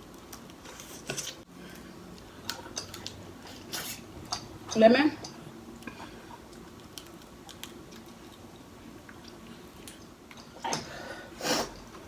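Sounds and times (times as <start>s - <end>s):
chewing and mouth smacking: 5.8s - 10.5s.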